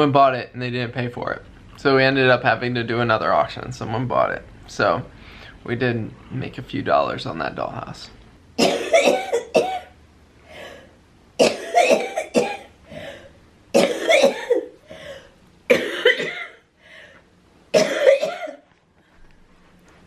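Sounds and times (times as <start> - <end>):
person coughing: 8.6 - 9.9, 11.4 - 14.8, 15.7 - 16.6, 17.8 - 18.6.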